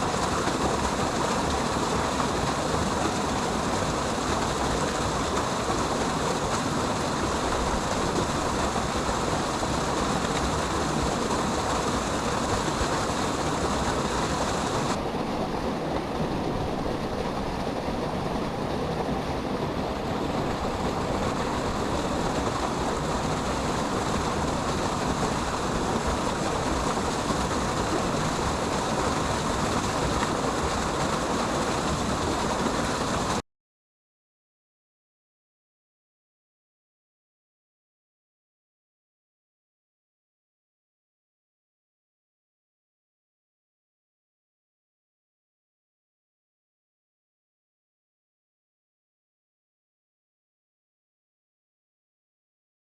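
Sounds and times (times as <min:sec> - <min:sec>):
waterfall rushing: 0:00.0 - 0:33.4.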